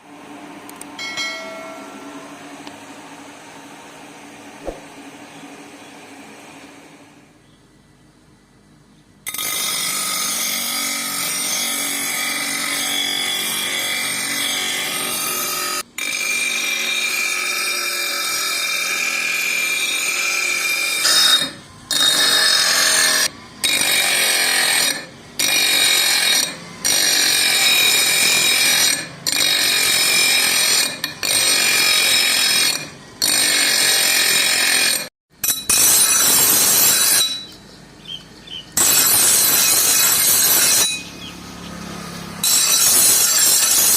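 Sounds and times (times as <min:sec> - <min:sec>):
power tool grinding steel: 0:09.3 - 0:37.6, 0:38.7 - 0:43.9.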